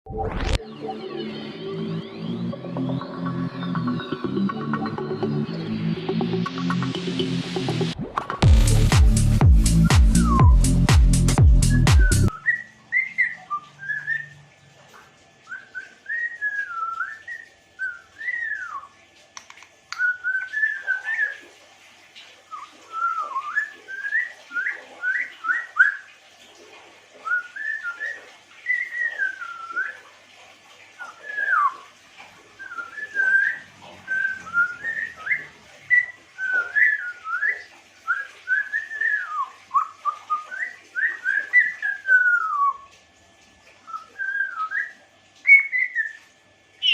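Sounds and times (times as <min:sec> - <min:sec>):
parrot whistling: 0:09.7 - 0:14.4, 0:32.6 - 0:37.6, 0:38.2 - 0:42.9, 0:44.0 - 0:46.2.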